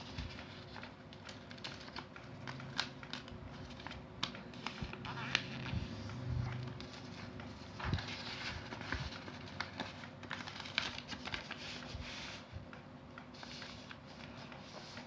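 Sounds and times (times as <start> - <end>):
paper rustling while folded: 0.0 - 15.0.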